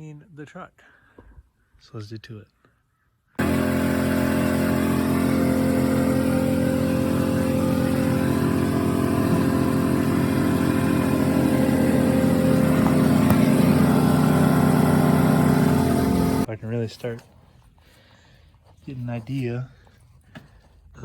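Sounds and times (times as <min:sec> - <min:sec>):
engine running steadily: 0:03.4 - 0:16.5.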